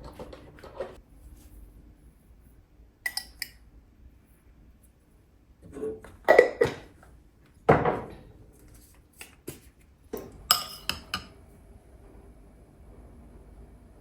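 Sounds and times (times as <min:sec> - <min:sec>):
dishes and cutlery clinking: 0:03.1 - 0:03.6, 0:10.2 - 0:11.3.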